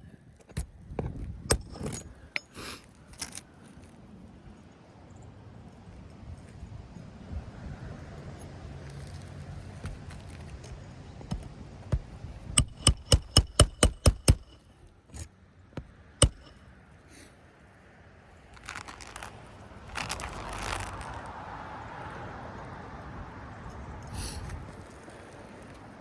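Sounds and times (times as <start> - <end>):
hammer striking nails: 1.5 - 2.5, 11.3 - 16.6.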